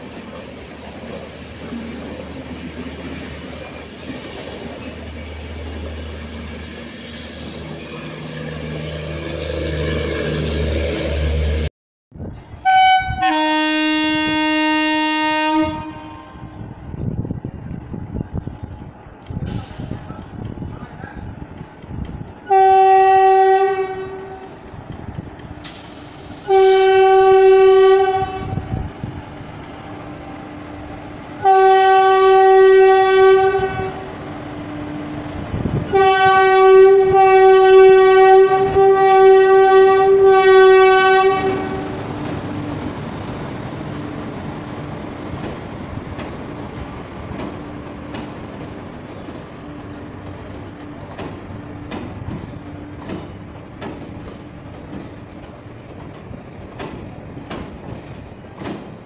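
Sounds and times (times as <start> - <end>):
train coaches rumbling: 0.0 - 59.0
locomotive horn blasts: 12.6 - 16.4, 22.4 - 24.5, 26.4 - 28.6, 31.4 - 34.1, 35.9 - 42.0
wheels clacking over rail joints: 17.6 - 25.9, 41.1 - 59.0.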